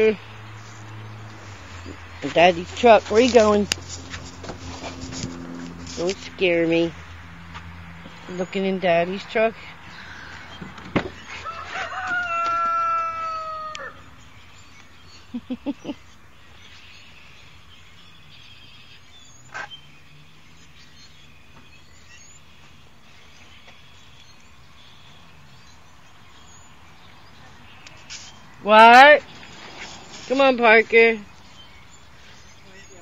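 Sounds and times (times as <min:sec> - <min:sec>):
rooster crowing: 0:11.3 - 0:14.1.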